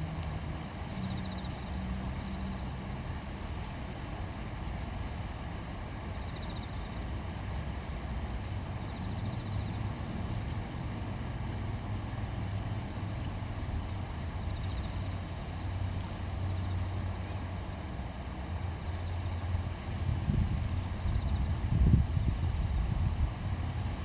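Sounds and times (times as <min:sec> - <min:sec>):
river water rushing over stones: 0:00.0 - 0:24.0
wind buffeting microphone: 0:18.6 - 0:24.0.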